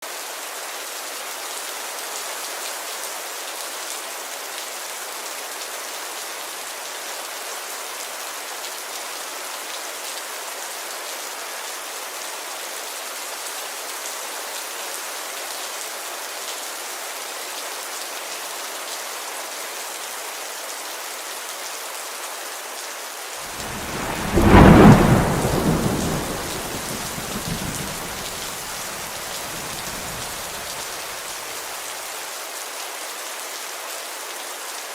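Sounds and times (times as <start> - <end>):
rain on a window: 0.1 - 34.9
thunder rumble: 23.5 - 30.9.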